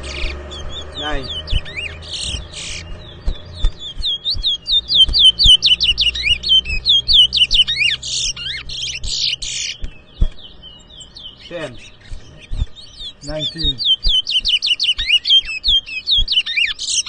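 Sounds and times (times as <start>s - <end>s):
finch singing whistled notes: 0.0s - 17.0s
light knocks: 9.8s - 10.5s.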